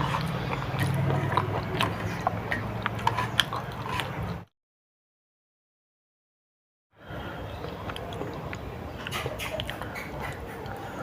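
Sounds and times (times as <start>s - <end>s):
chewing with sharp clicks: 0.0s - 4.4s, 7.6s - 10.9s.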